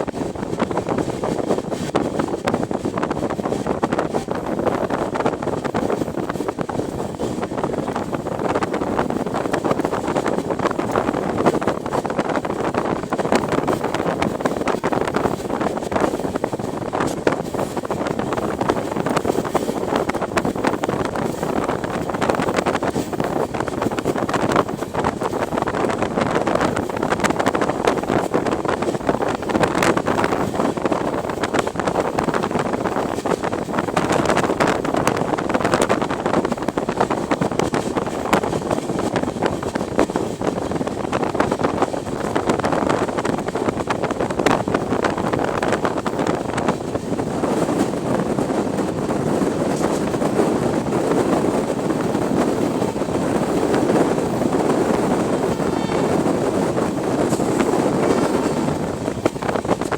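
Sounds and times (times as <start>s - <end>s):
train running: 0.0s - 59.9s
wind buffeting microphone: 0.0s - 59.9s.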